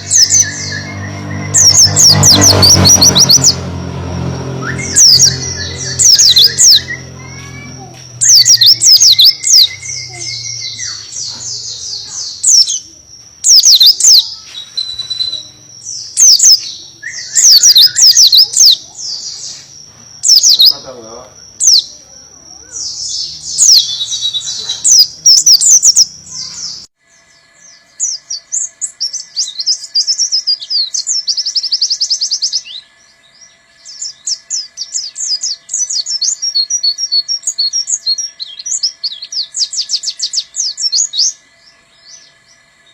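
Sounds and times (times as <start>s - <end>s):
bird singing rapid chirps: 0.0s - 42.9s.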